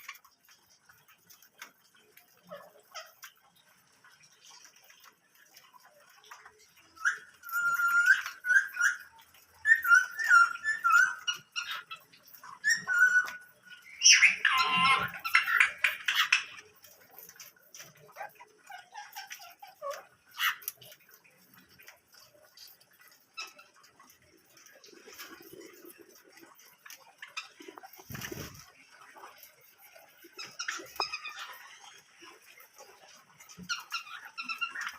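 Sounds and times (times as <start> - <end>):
birds chirping: 0.0 - 34.9
bird squawking: 7.0 - 16.7.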